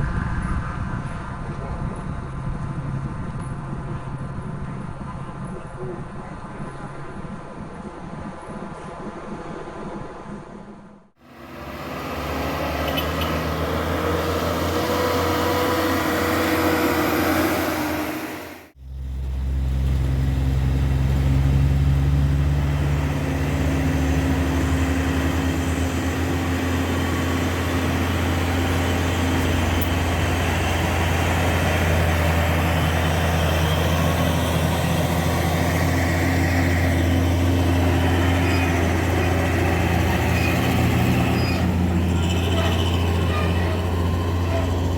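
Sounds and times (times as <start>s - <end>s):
heavy truck engine droning: 11.2s - 44.9s.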